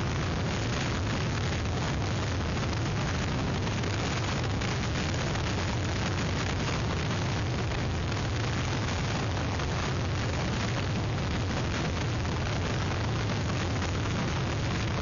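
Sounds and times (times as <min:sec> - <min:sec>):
strong wind rushing: 0:00.0 - 0:15.0.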